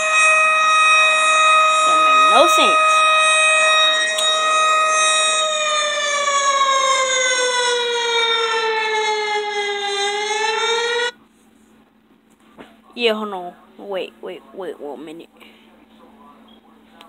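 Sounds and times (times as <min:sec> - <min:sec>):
warning siren wailing: 0:00.0 - 0:11.2.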